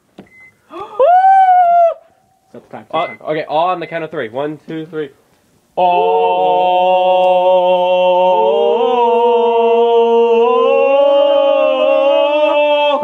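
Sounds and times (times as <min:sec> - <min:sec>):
men singing sustained chant: 0:05.8 - 0:13.0.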